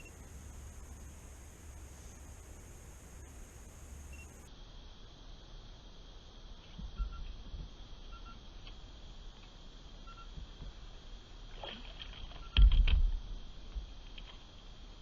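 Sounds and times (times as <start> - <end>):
faint outdoor background: 0.0 - 15.0
faint short beeps: 4.1 - 4.5, 7.0 - 7.3, 10.1 - 10.3, 12.4 - 12.7.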